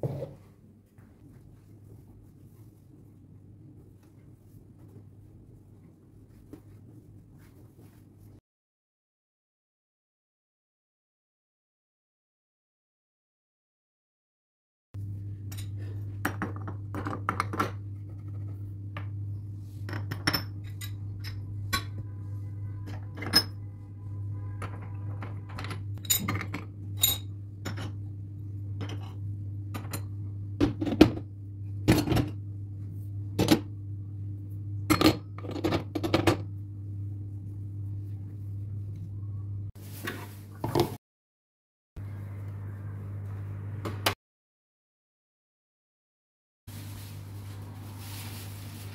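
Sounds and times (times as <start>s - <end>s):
steady low hum: 15.0s - 39.8s.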